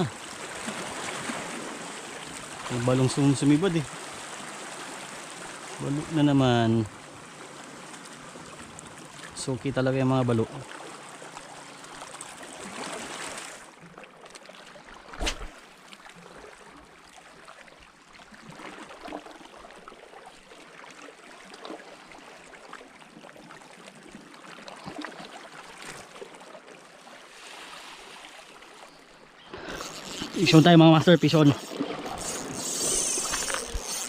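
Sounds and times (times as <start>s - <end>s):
water lapping and trickling: 0.0s - 34.0s.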